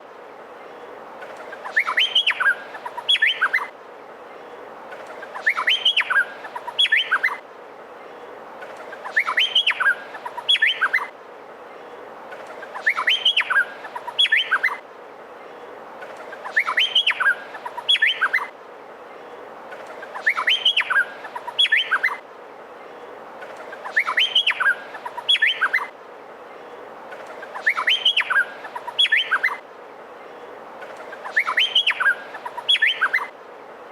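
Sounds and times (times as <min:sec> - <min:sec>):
steady background hiss: 0:00.0 - 0:33.9
bird whistling song: 0:01.4 - 0:03.7, 0:05.2 - 0:07.4, 0:09.0 - 0:11.1, 0:12.6 - 0:14.8, 0:16.3 - 0:18.5, 0:19.8 - 0:22.2, 0:23.8 - 0:25.9, 0:27.2 - 0:29.6, 0:31.0 - 0:33.3.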